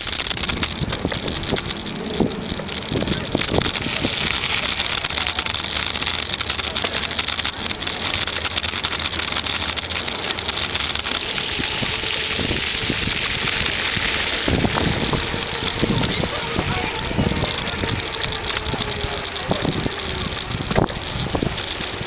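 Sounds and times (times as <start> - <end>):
bike rattling on path: 0.0 - 22.0
rushing hiss of riding: 1.8 - 22.0.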